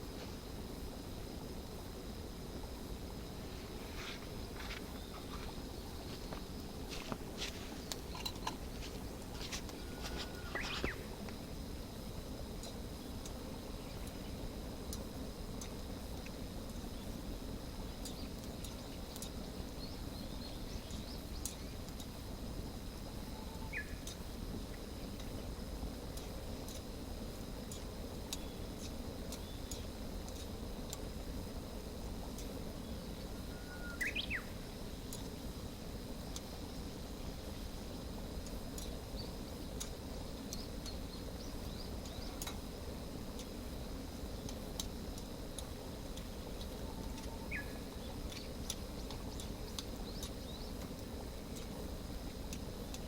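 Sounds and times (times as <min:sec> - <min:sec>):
campfire crackling: 0:00.0 - 0:53.0
high insect-like tone: 0:00.0 - 0:53.0
low outdoor rumble: 0:00.0 - 0:53.0
faint bird chirps: 0:04.8 - 0:06.4, 0:09.8 - 0:11.1, 0:23.2 - 0:24.2, 0:32.8 - 0:35.2, 0:46.2 - 0:50.8.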